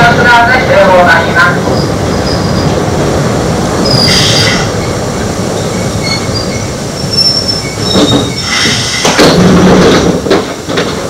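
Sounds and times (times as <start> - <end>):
wheels rumbling on rails: 0.0 - 11.0
high wheel squeals: 3.8 - 5.0, 5.6 - 9.2.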